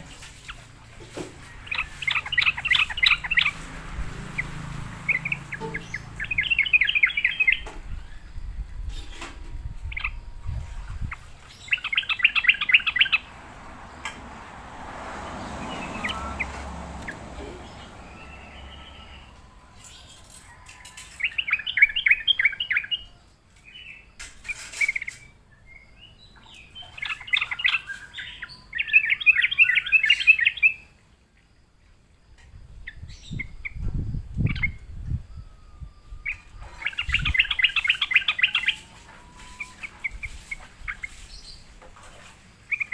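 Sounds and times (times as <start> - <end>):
bird singing chattering notes: 1.5 - 14.1, 15.6 - 20.3, 21.1 - 23.1, 23.7 - 30.9, 36.2 - 41.7.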